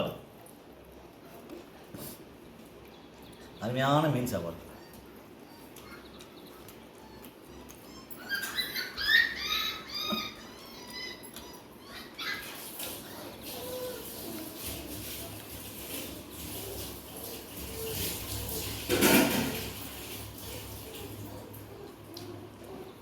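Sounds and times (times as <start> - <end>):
small animal squeaky cries: 7.0 - 14.2.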